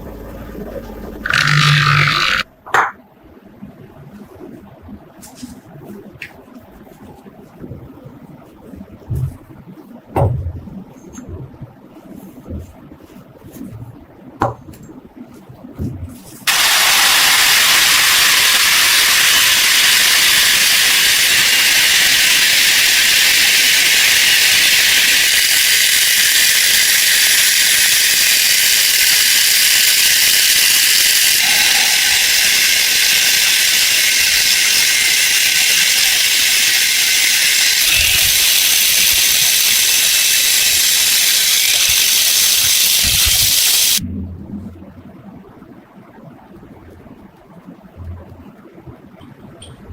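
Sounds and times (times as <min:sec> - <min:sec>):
high-pitched hiss: 0:01.2 - 0:02.4, 0:16.5 - 0:44.0.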